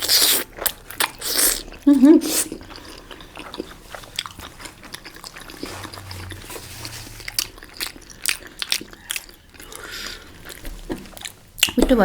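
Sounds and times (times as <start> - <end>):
chewing and biting dumplings: 0.0 - 6.0.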